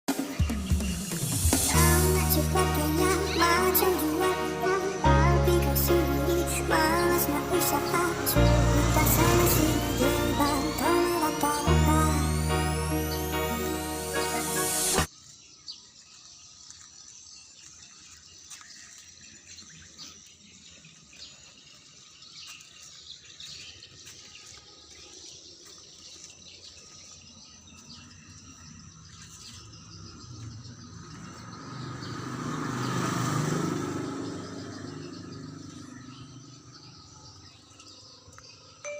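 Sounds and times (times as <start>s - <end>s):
heavy vehicle passing by: 1.6s - 15.1s, 30.2s - 36.9s.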